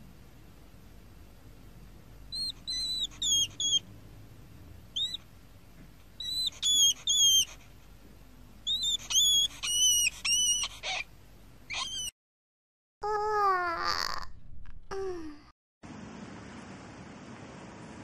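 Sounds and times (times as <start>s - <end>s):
hedgehog squeaking: 2.3s - 3.8s, 5.0s - 5.2s, 6.2s - 7.7s, 8.6s - 11.1s, 11.7s - 12.2s.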